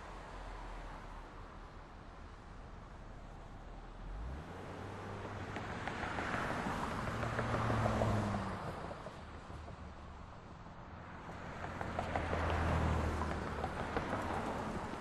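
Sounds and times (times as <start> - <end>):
background traffic: 0.0 - 15.0
vehicle passing: 11.3 - 15.0.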